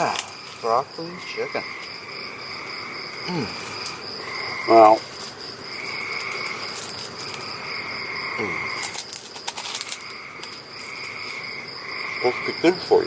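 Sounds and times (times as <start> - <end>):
lower frog trill: 0.0 - 5.1, 7.8 - 9.1
high insect trill: 0.0 - 13.0.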